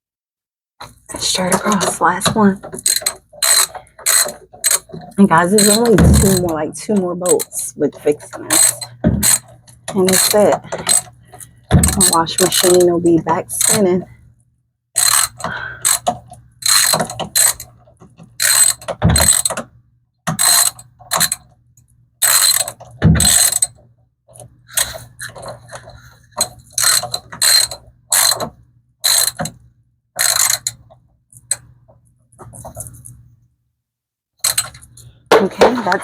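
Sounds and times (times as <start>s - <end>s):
ratchet wrench clicking: 2.8s - 4.9s, 5.6s - 6.6s, 8.5s - 11.2s, 15.0s - 17.7s, 18.4s - 19.6s, 20.3s - 21.4s, 22.2s - 23.7s, 26.4s - 29.6s, 30.2s - 30.8s, 34.4s - 35.0s.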